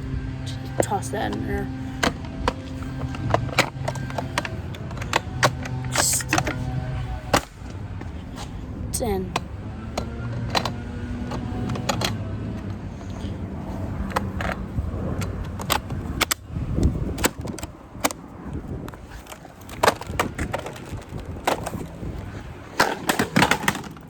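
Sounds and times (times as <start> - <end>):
plastic parts knocking and clattering: 0.8 - 6.6, 9.3 - 13.3, 19.6 - 21.9, 22.8 - 24.0.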